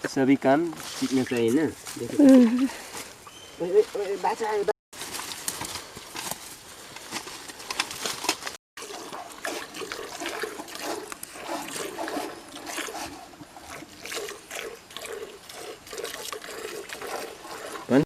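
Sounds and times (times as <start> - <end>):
milk squirting into a pail: 8.8 - 18.0.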